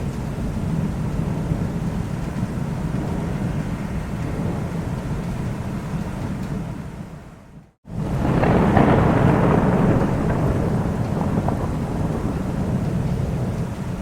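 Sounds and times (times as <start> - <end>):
rolling thunder: 0.4 - 6.8, 7.8 - 14.0
rain hiss: 7.9 - 14.0.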